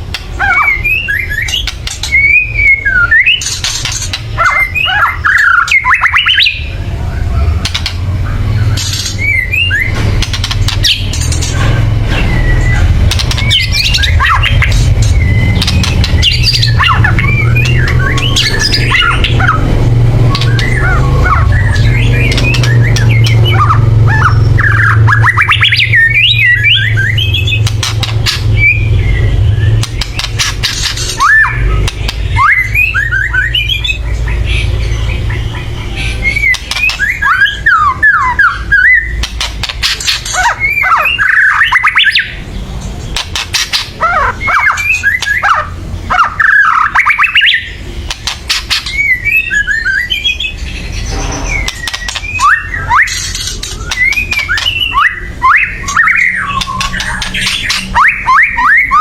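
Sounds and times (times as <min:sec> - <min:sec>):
bird rattles and whistles: 0:00.2 - 0:06.6, 0:07.6 - 0:19.6, 0:20.3 - 0:33.9, 0:36.3 - 0:42.4, 0:51.0 - 0:59.0.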